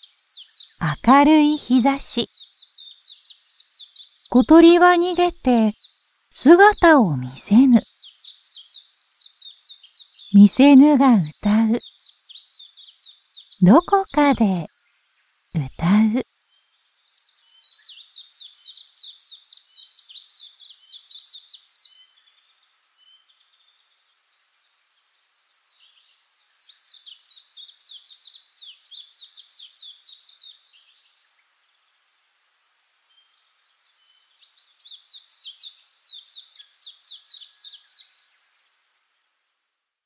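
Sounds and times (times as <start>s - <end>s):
songbird singing high notes: 34.0s - 38.4s.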